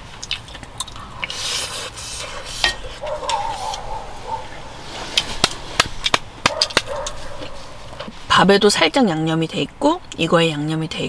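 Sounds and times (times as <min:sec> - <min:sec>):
person chewing food: 0:00.0 - 0:08.1.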